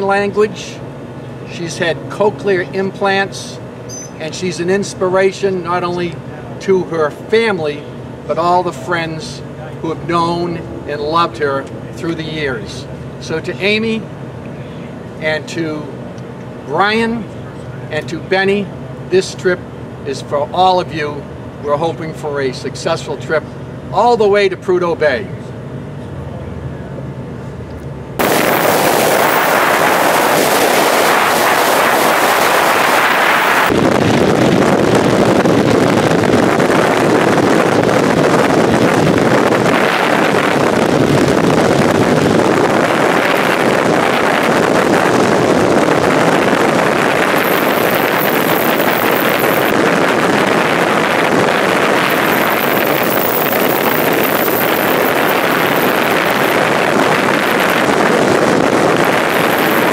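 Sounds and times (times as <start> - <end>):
road and engine noise: 0.0 - 59.9
wind buffeting microphone: 28.2 - 59.9.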